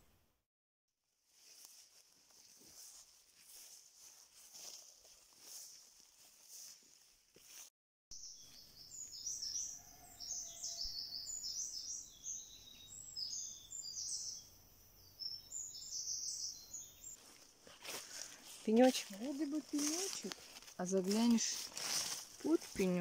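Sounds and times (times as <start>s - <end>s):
songbirds chirping and singing: 8.2s - 22.9s.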